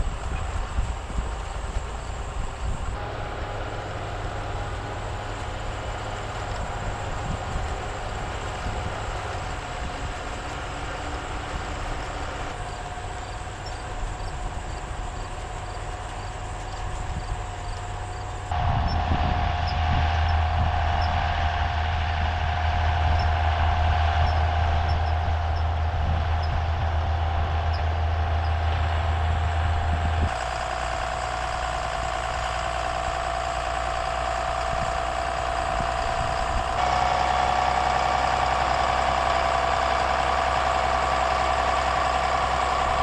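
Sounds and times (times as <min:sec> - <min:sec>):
forage chopper whine: 0:00.0 - 0:43.0
low engine drone: 0:00.0 - 0:43.0.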